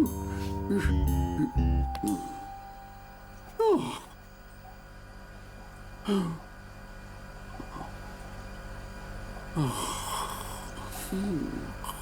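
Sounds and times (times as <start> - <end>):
low hum: 0.0 - 3.9.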